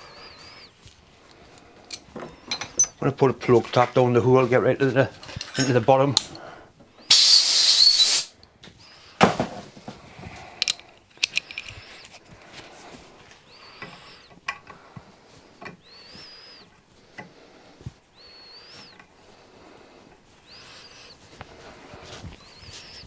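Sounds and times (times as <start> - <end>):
hand tools clicking and knocking: 1.8 - 3.0, 5.3 - 6.5, 10.6 - 12.2
compressed air hissing: 7.1 - 8.3.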